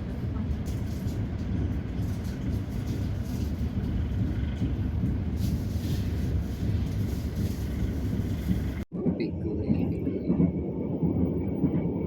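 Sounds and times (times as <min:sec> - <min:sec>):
train rumbling inside carriage: 0:00.0 - 0:12.0.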